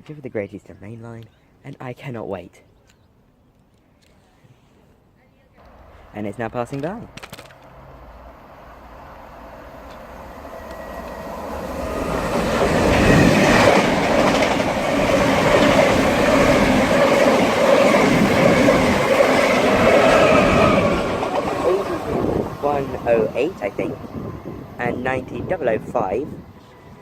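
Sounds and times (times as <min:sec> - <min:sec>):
train passing rumble: 0:05.6 - 0:27.0
steady train whine: 0:07.6 - 0:27.0.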